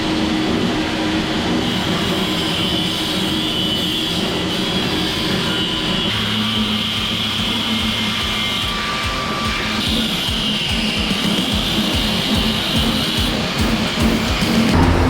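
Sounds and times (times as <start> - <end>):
deeper hum: 14.7 - 15.0.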